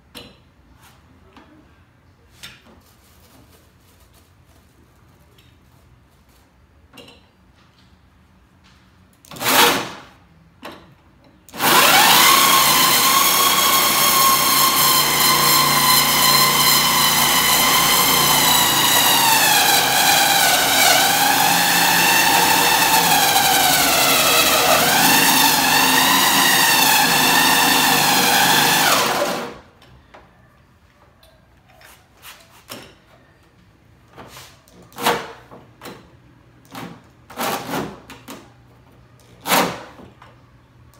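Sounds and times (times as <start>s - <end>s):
electric drill with hole saw: 11.6s - 29.6s.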